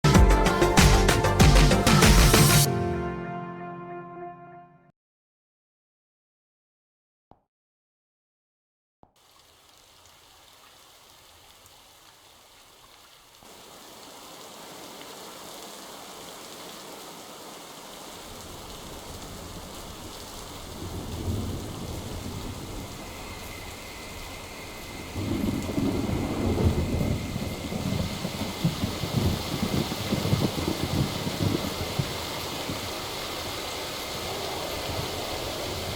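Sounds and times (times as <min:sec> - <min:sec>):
rain hiss: 0:09.2 - 0:35.9
low thunder rumble: 0:18.8 - 0:33.1.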